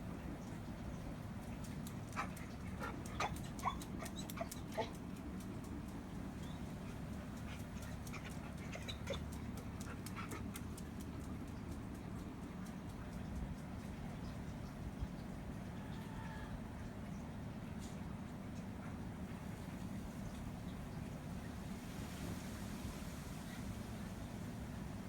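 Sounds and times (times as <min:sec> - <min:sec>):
steady low hum: 0:00.0 - 0:25.0
dog whimpering: 0:03.1 - 0:05.0, 0:08.2 - 0:09.4.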